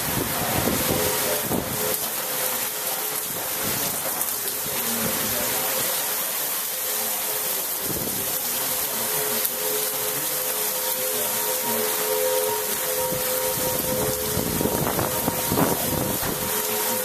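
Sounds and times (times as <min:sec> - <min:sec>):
wind buffeting the microphone: 0:00.0 - 0:01.9, 0:13.1 - 0:16.6
heavy rain pouring: 0:00.0 - 0:17.0.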